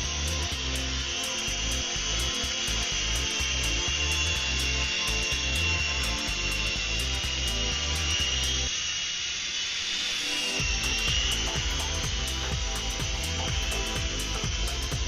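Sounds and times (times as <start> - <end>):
toy helicopter whine and buzz: 0.0 - 15.0.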